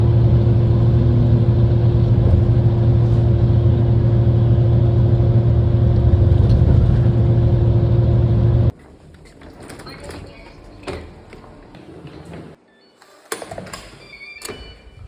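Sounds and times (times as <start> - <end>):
loud mechanical drone: 0.0 - 8.7.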